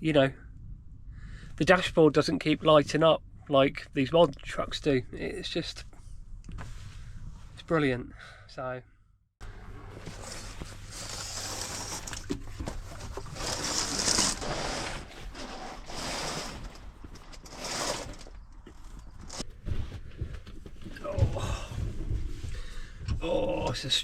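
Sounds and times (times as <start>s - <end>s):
rustling and shuffling belongings: 9.4s - 23.2s.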